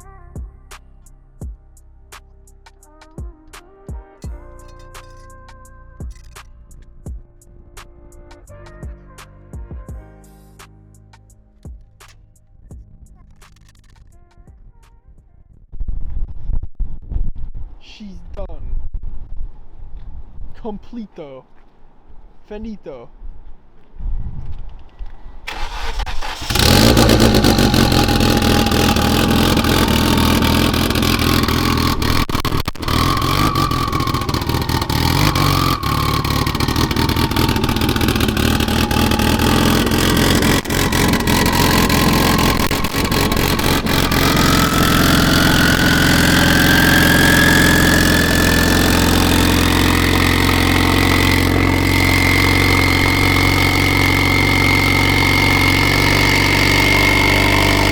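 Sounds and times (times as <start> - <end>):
turbocharged car engine: 25.5 - 57.9
high whine rising in pitch: 26.6 - 57.9.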